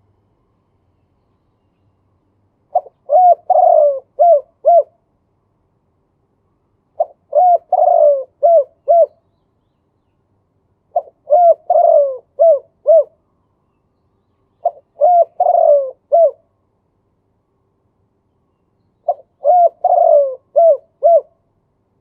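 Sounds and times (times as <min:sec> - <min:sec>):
dove cooing: 0:02.7 - 0:05.0, 0:07.0 - 0:09.2, 0:10.9 - 0:13.2, 0:14.6 - 0:16.5, 0:19.0 - 0:21.4.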